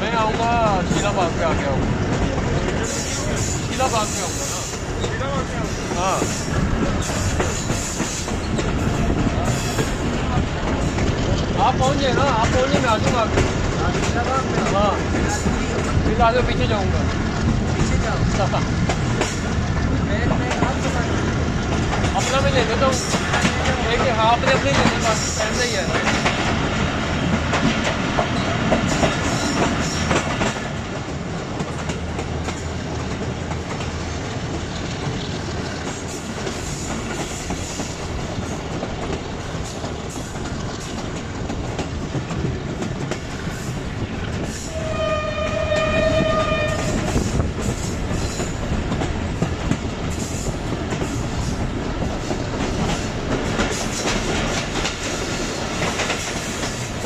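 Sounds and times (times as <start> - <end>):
train wheels rumbling and clattering: 0.0 - 57.0
locomotive horn: 44.7 - 47.2.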